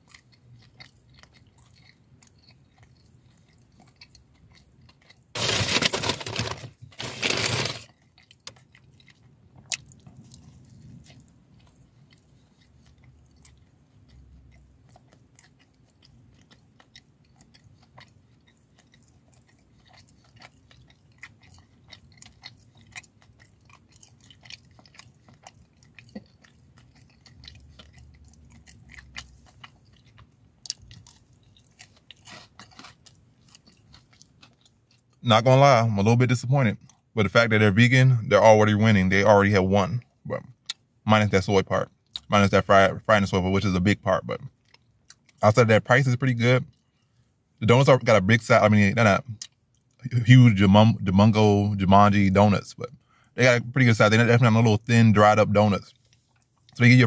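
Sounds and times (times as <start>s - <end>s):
person chewing crunchy food: 0.0s - 35.2s.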